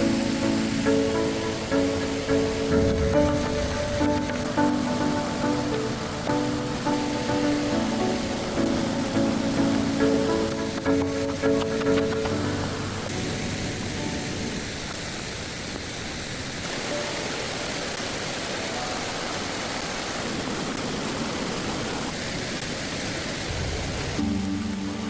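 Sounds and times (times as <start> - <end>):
music: 0.0 - 14.6, 24.2 - 25.0
waterfall rushing: 0.0 - 25.0.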